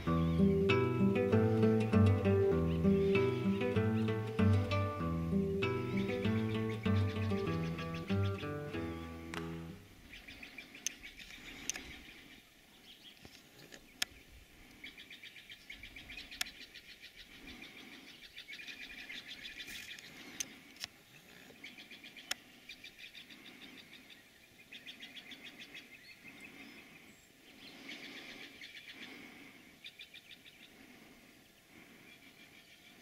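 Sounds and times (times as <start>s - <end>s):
rapid bird trills: 0.0s - 9.1s, 21.6s - 31.1s
sharp clicks: 9.3s - 9.6s.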